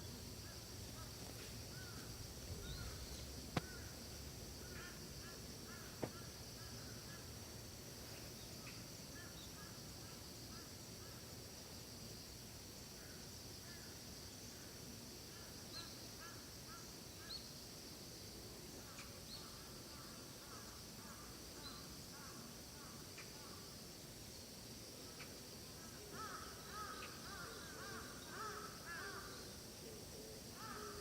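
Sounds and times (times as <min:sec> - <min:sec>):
small birds chirping: 0:00.0 - 0:07.4
steady high hiss: 0:00.0 - 0:31.0.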